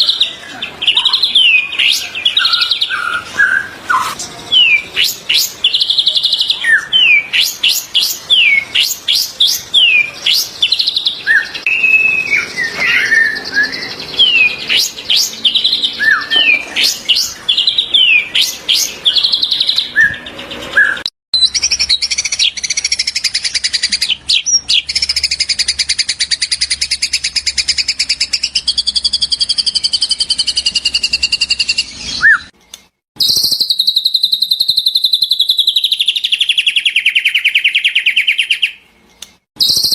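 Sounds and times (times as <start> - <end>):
bird whistling and chirping: 0.0 - 32.6, 33.2 - 38.8, 39.6 - 39.9
bird fast trill: 33.2 - 38.8, 39.6 - 39.9.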